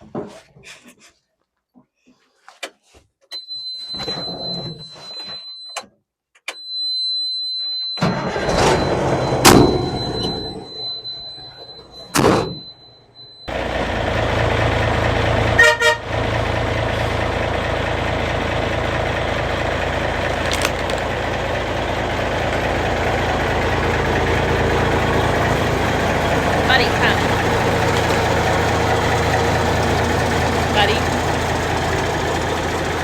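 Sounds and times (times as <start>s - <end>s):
high beep: 6.7s - 13.5s
diesel truck engine running: 8.1s - 11.0s, 13.5s - 33.0s.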